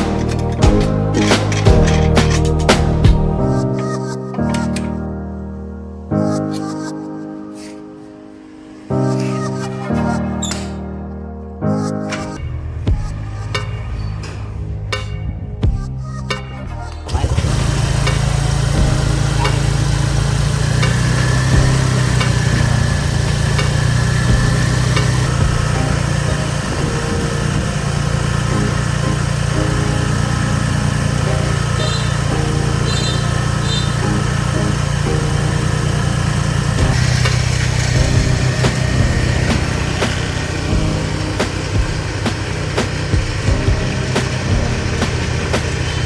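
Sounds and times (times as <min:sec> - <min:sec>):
motor humming: 0:00.0 - 0:03.5, 0:17.0 - 0:46.0.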